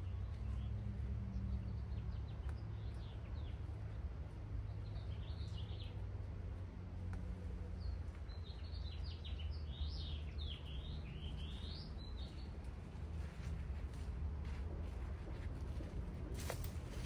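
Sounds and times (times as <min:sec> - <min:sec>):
songbird singing quick chirps: 0:04.6 - 0:06.0, 0:07.7 - 0:12.6.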